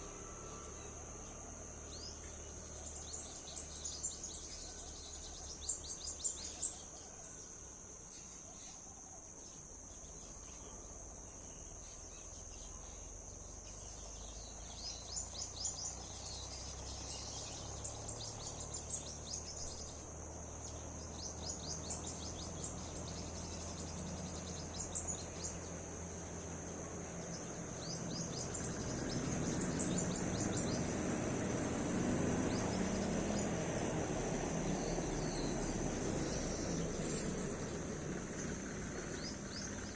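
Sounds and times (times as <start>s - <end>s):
insect drone: 0.0s - 39.9s
low noisy rumble: 15.5s - 39.9s.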